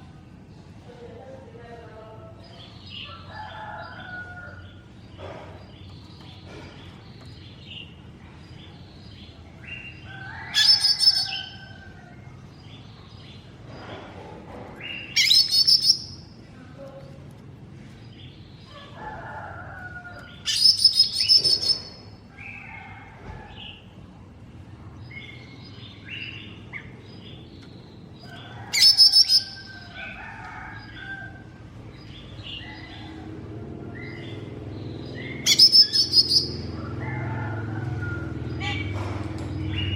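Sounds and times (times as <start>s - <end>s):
bird singing rapid high chirps: 10.6s - 11.6s, 14.9s - 16.3s, 20.4s - 22.6s, 28.7s - 29.9s, 34.0s - 36.8s
soft twittering calls: 14.8s - 16.3s, 20.3s - 22.8s, 25.1s - 31.3s, 34.0s - 37.0s.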